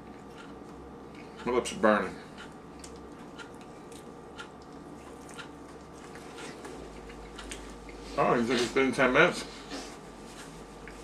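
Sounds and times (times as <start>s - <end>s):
steady low hum: 0.0s - 11.0s
chewing with wet mouth clicks: 0.1s - 1.5s, 2.4s - 8.0s.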